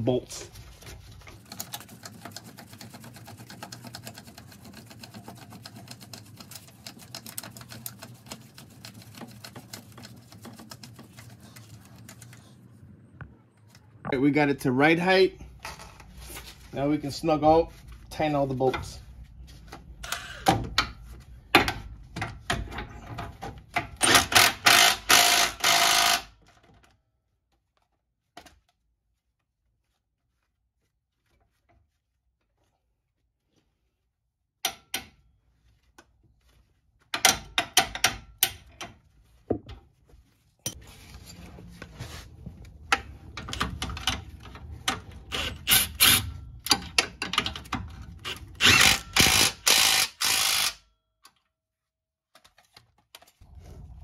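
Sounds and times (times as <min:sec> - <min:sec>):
ratchet clicking: 0:48.3 - 0:50.8.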